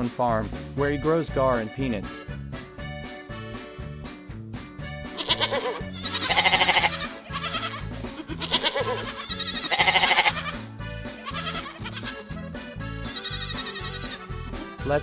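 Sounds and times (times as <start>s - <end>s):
music with steady beat: 0.0s - 15.0s
goats bleating: 5.1s - 14.3s.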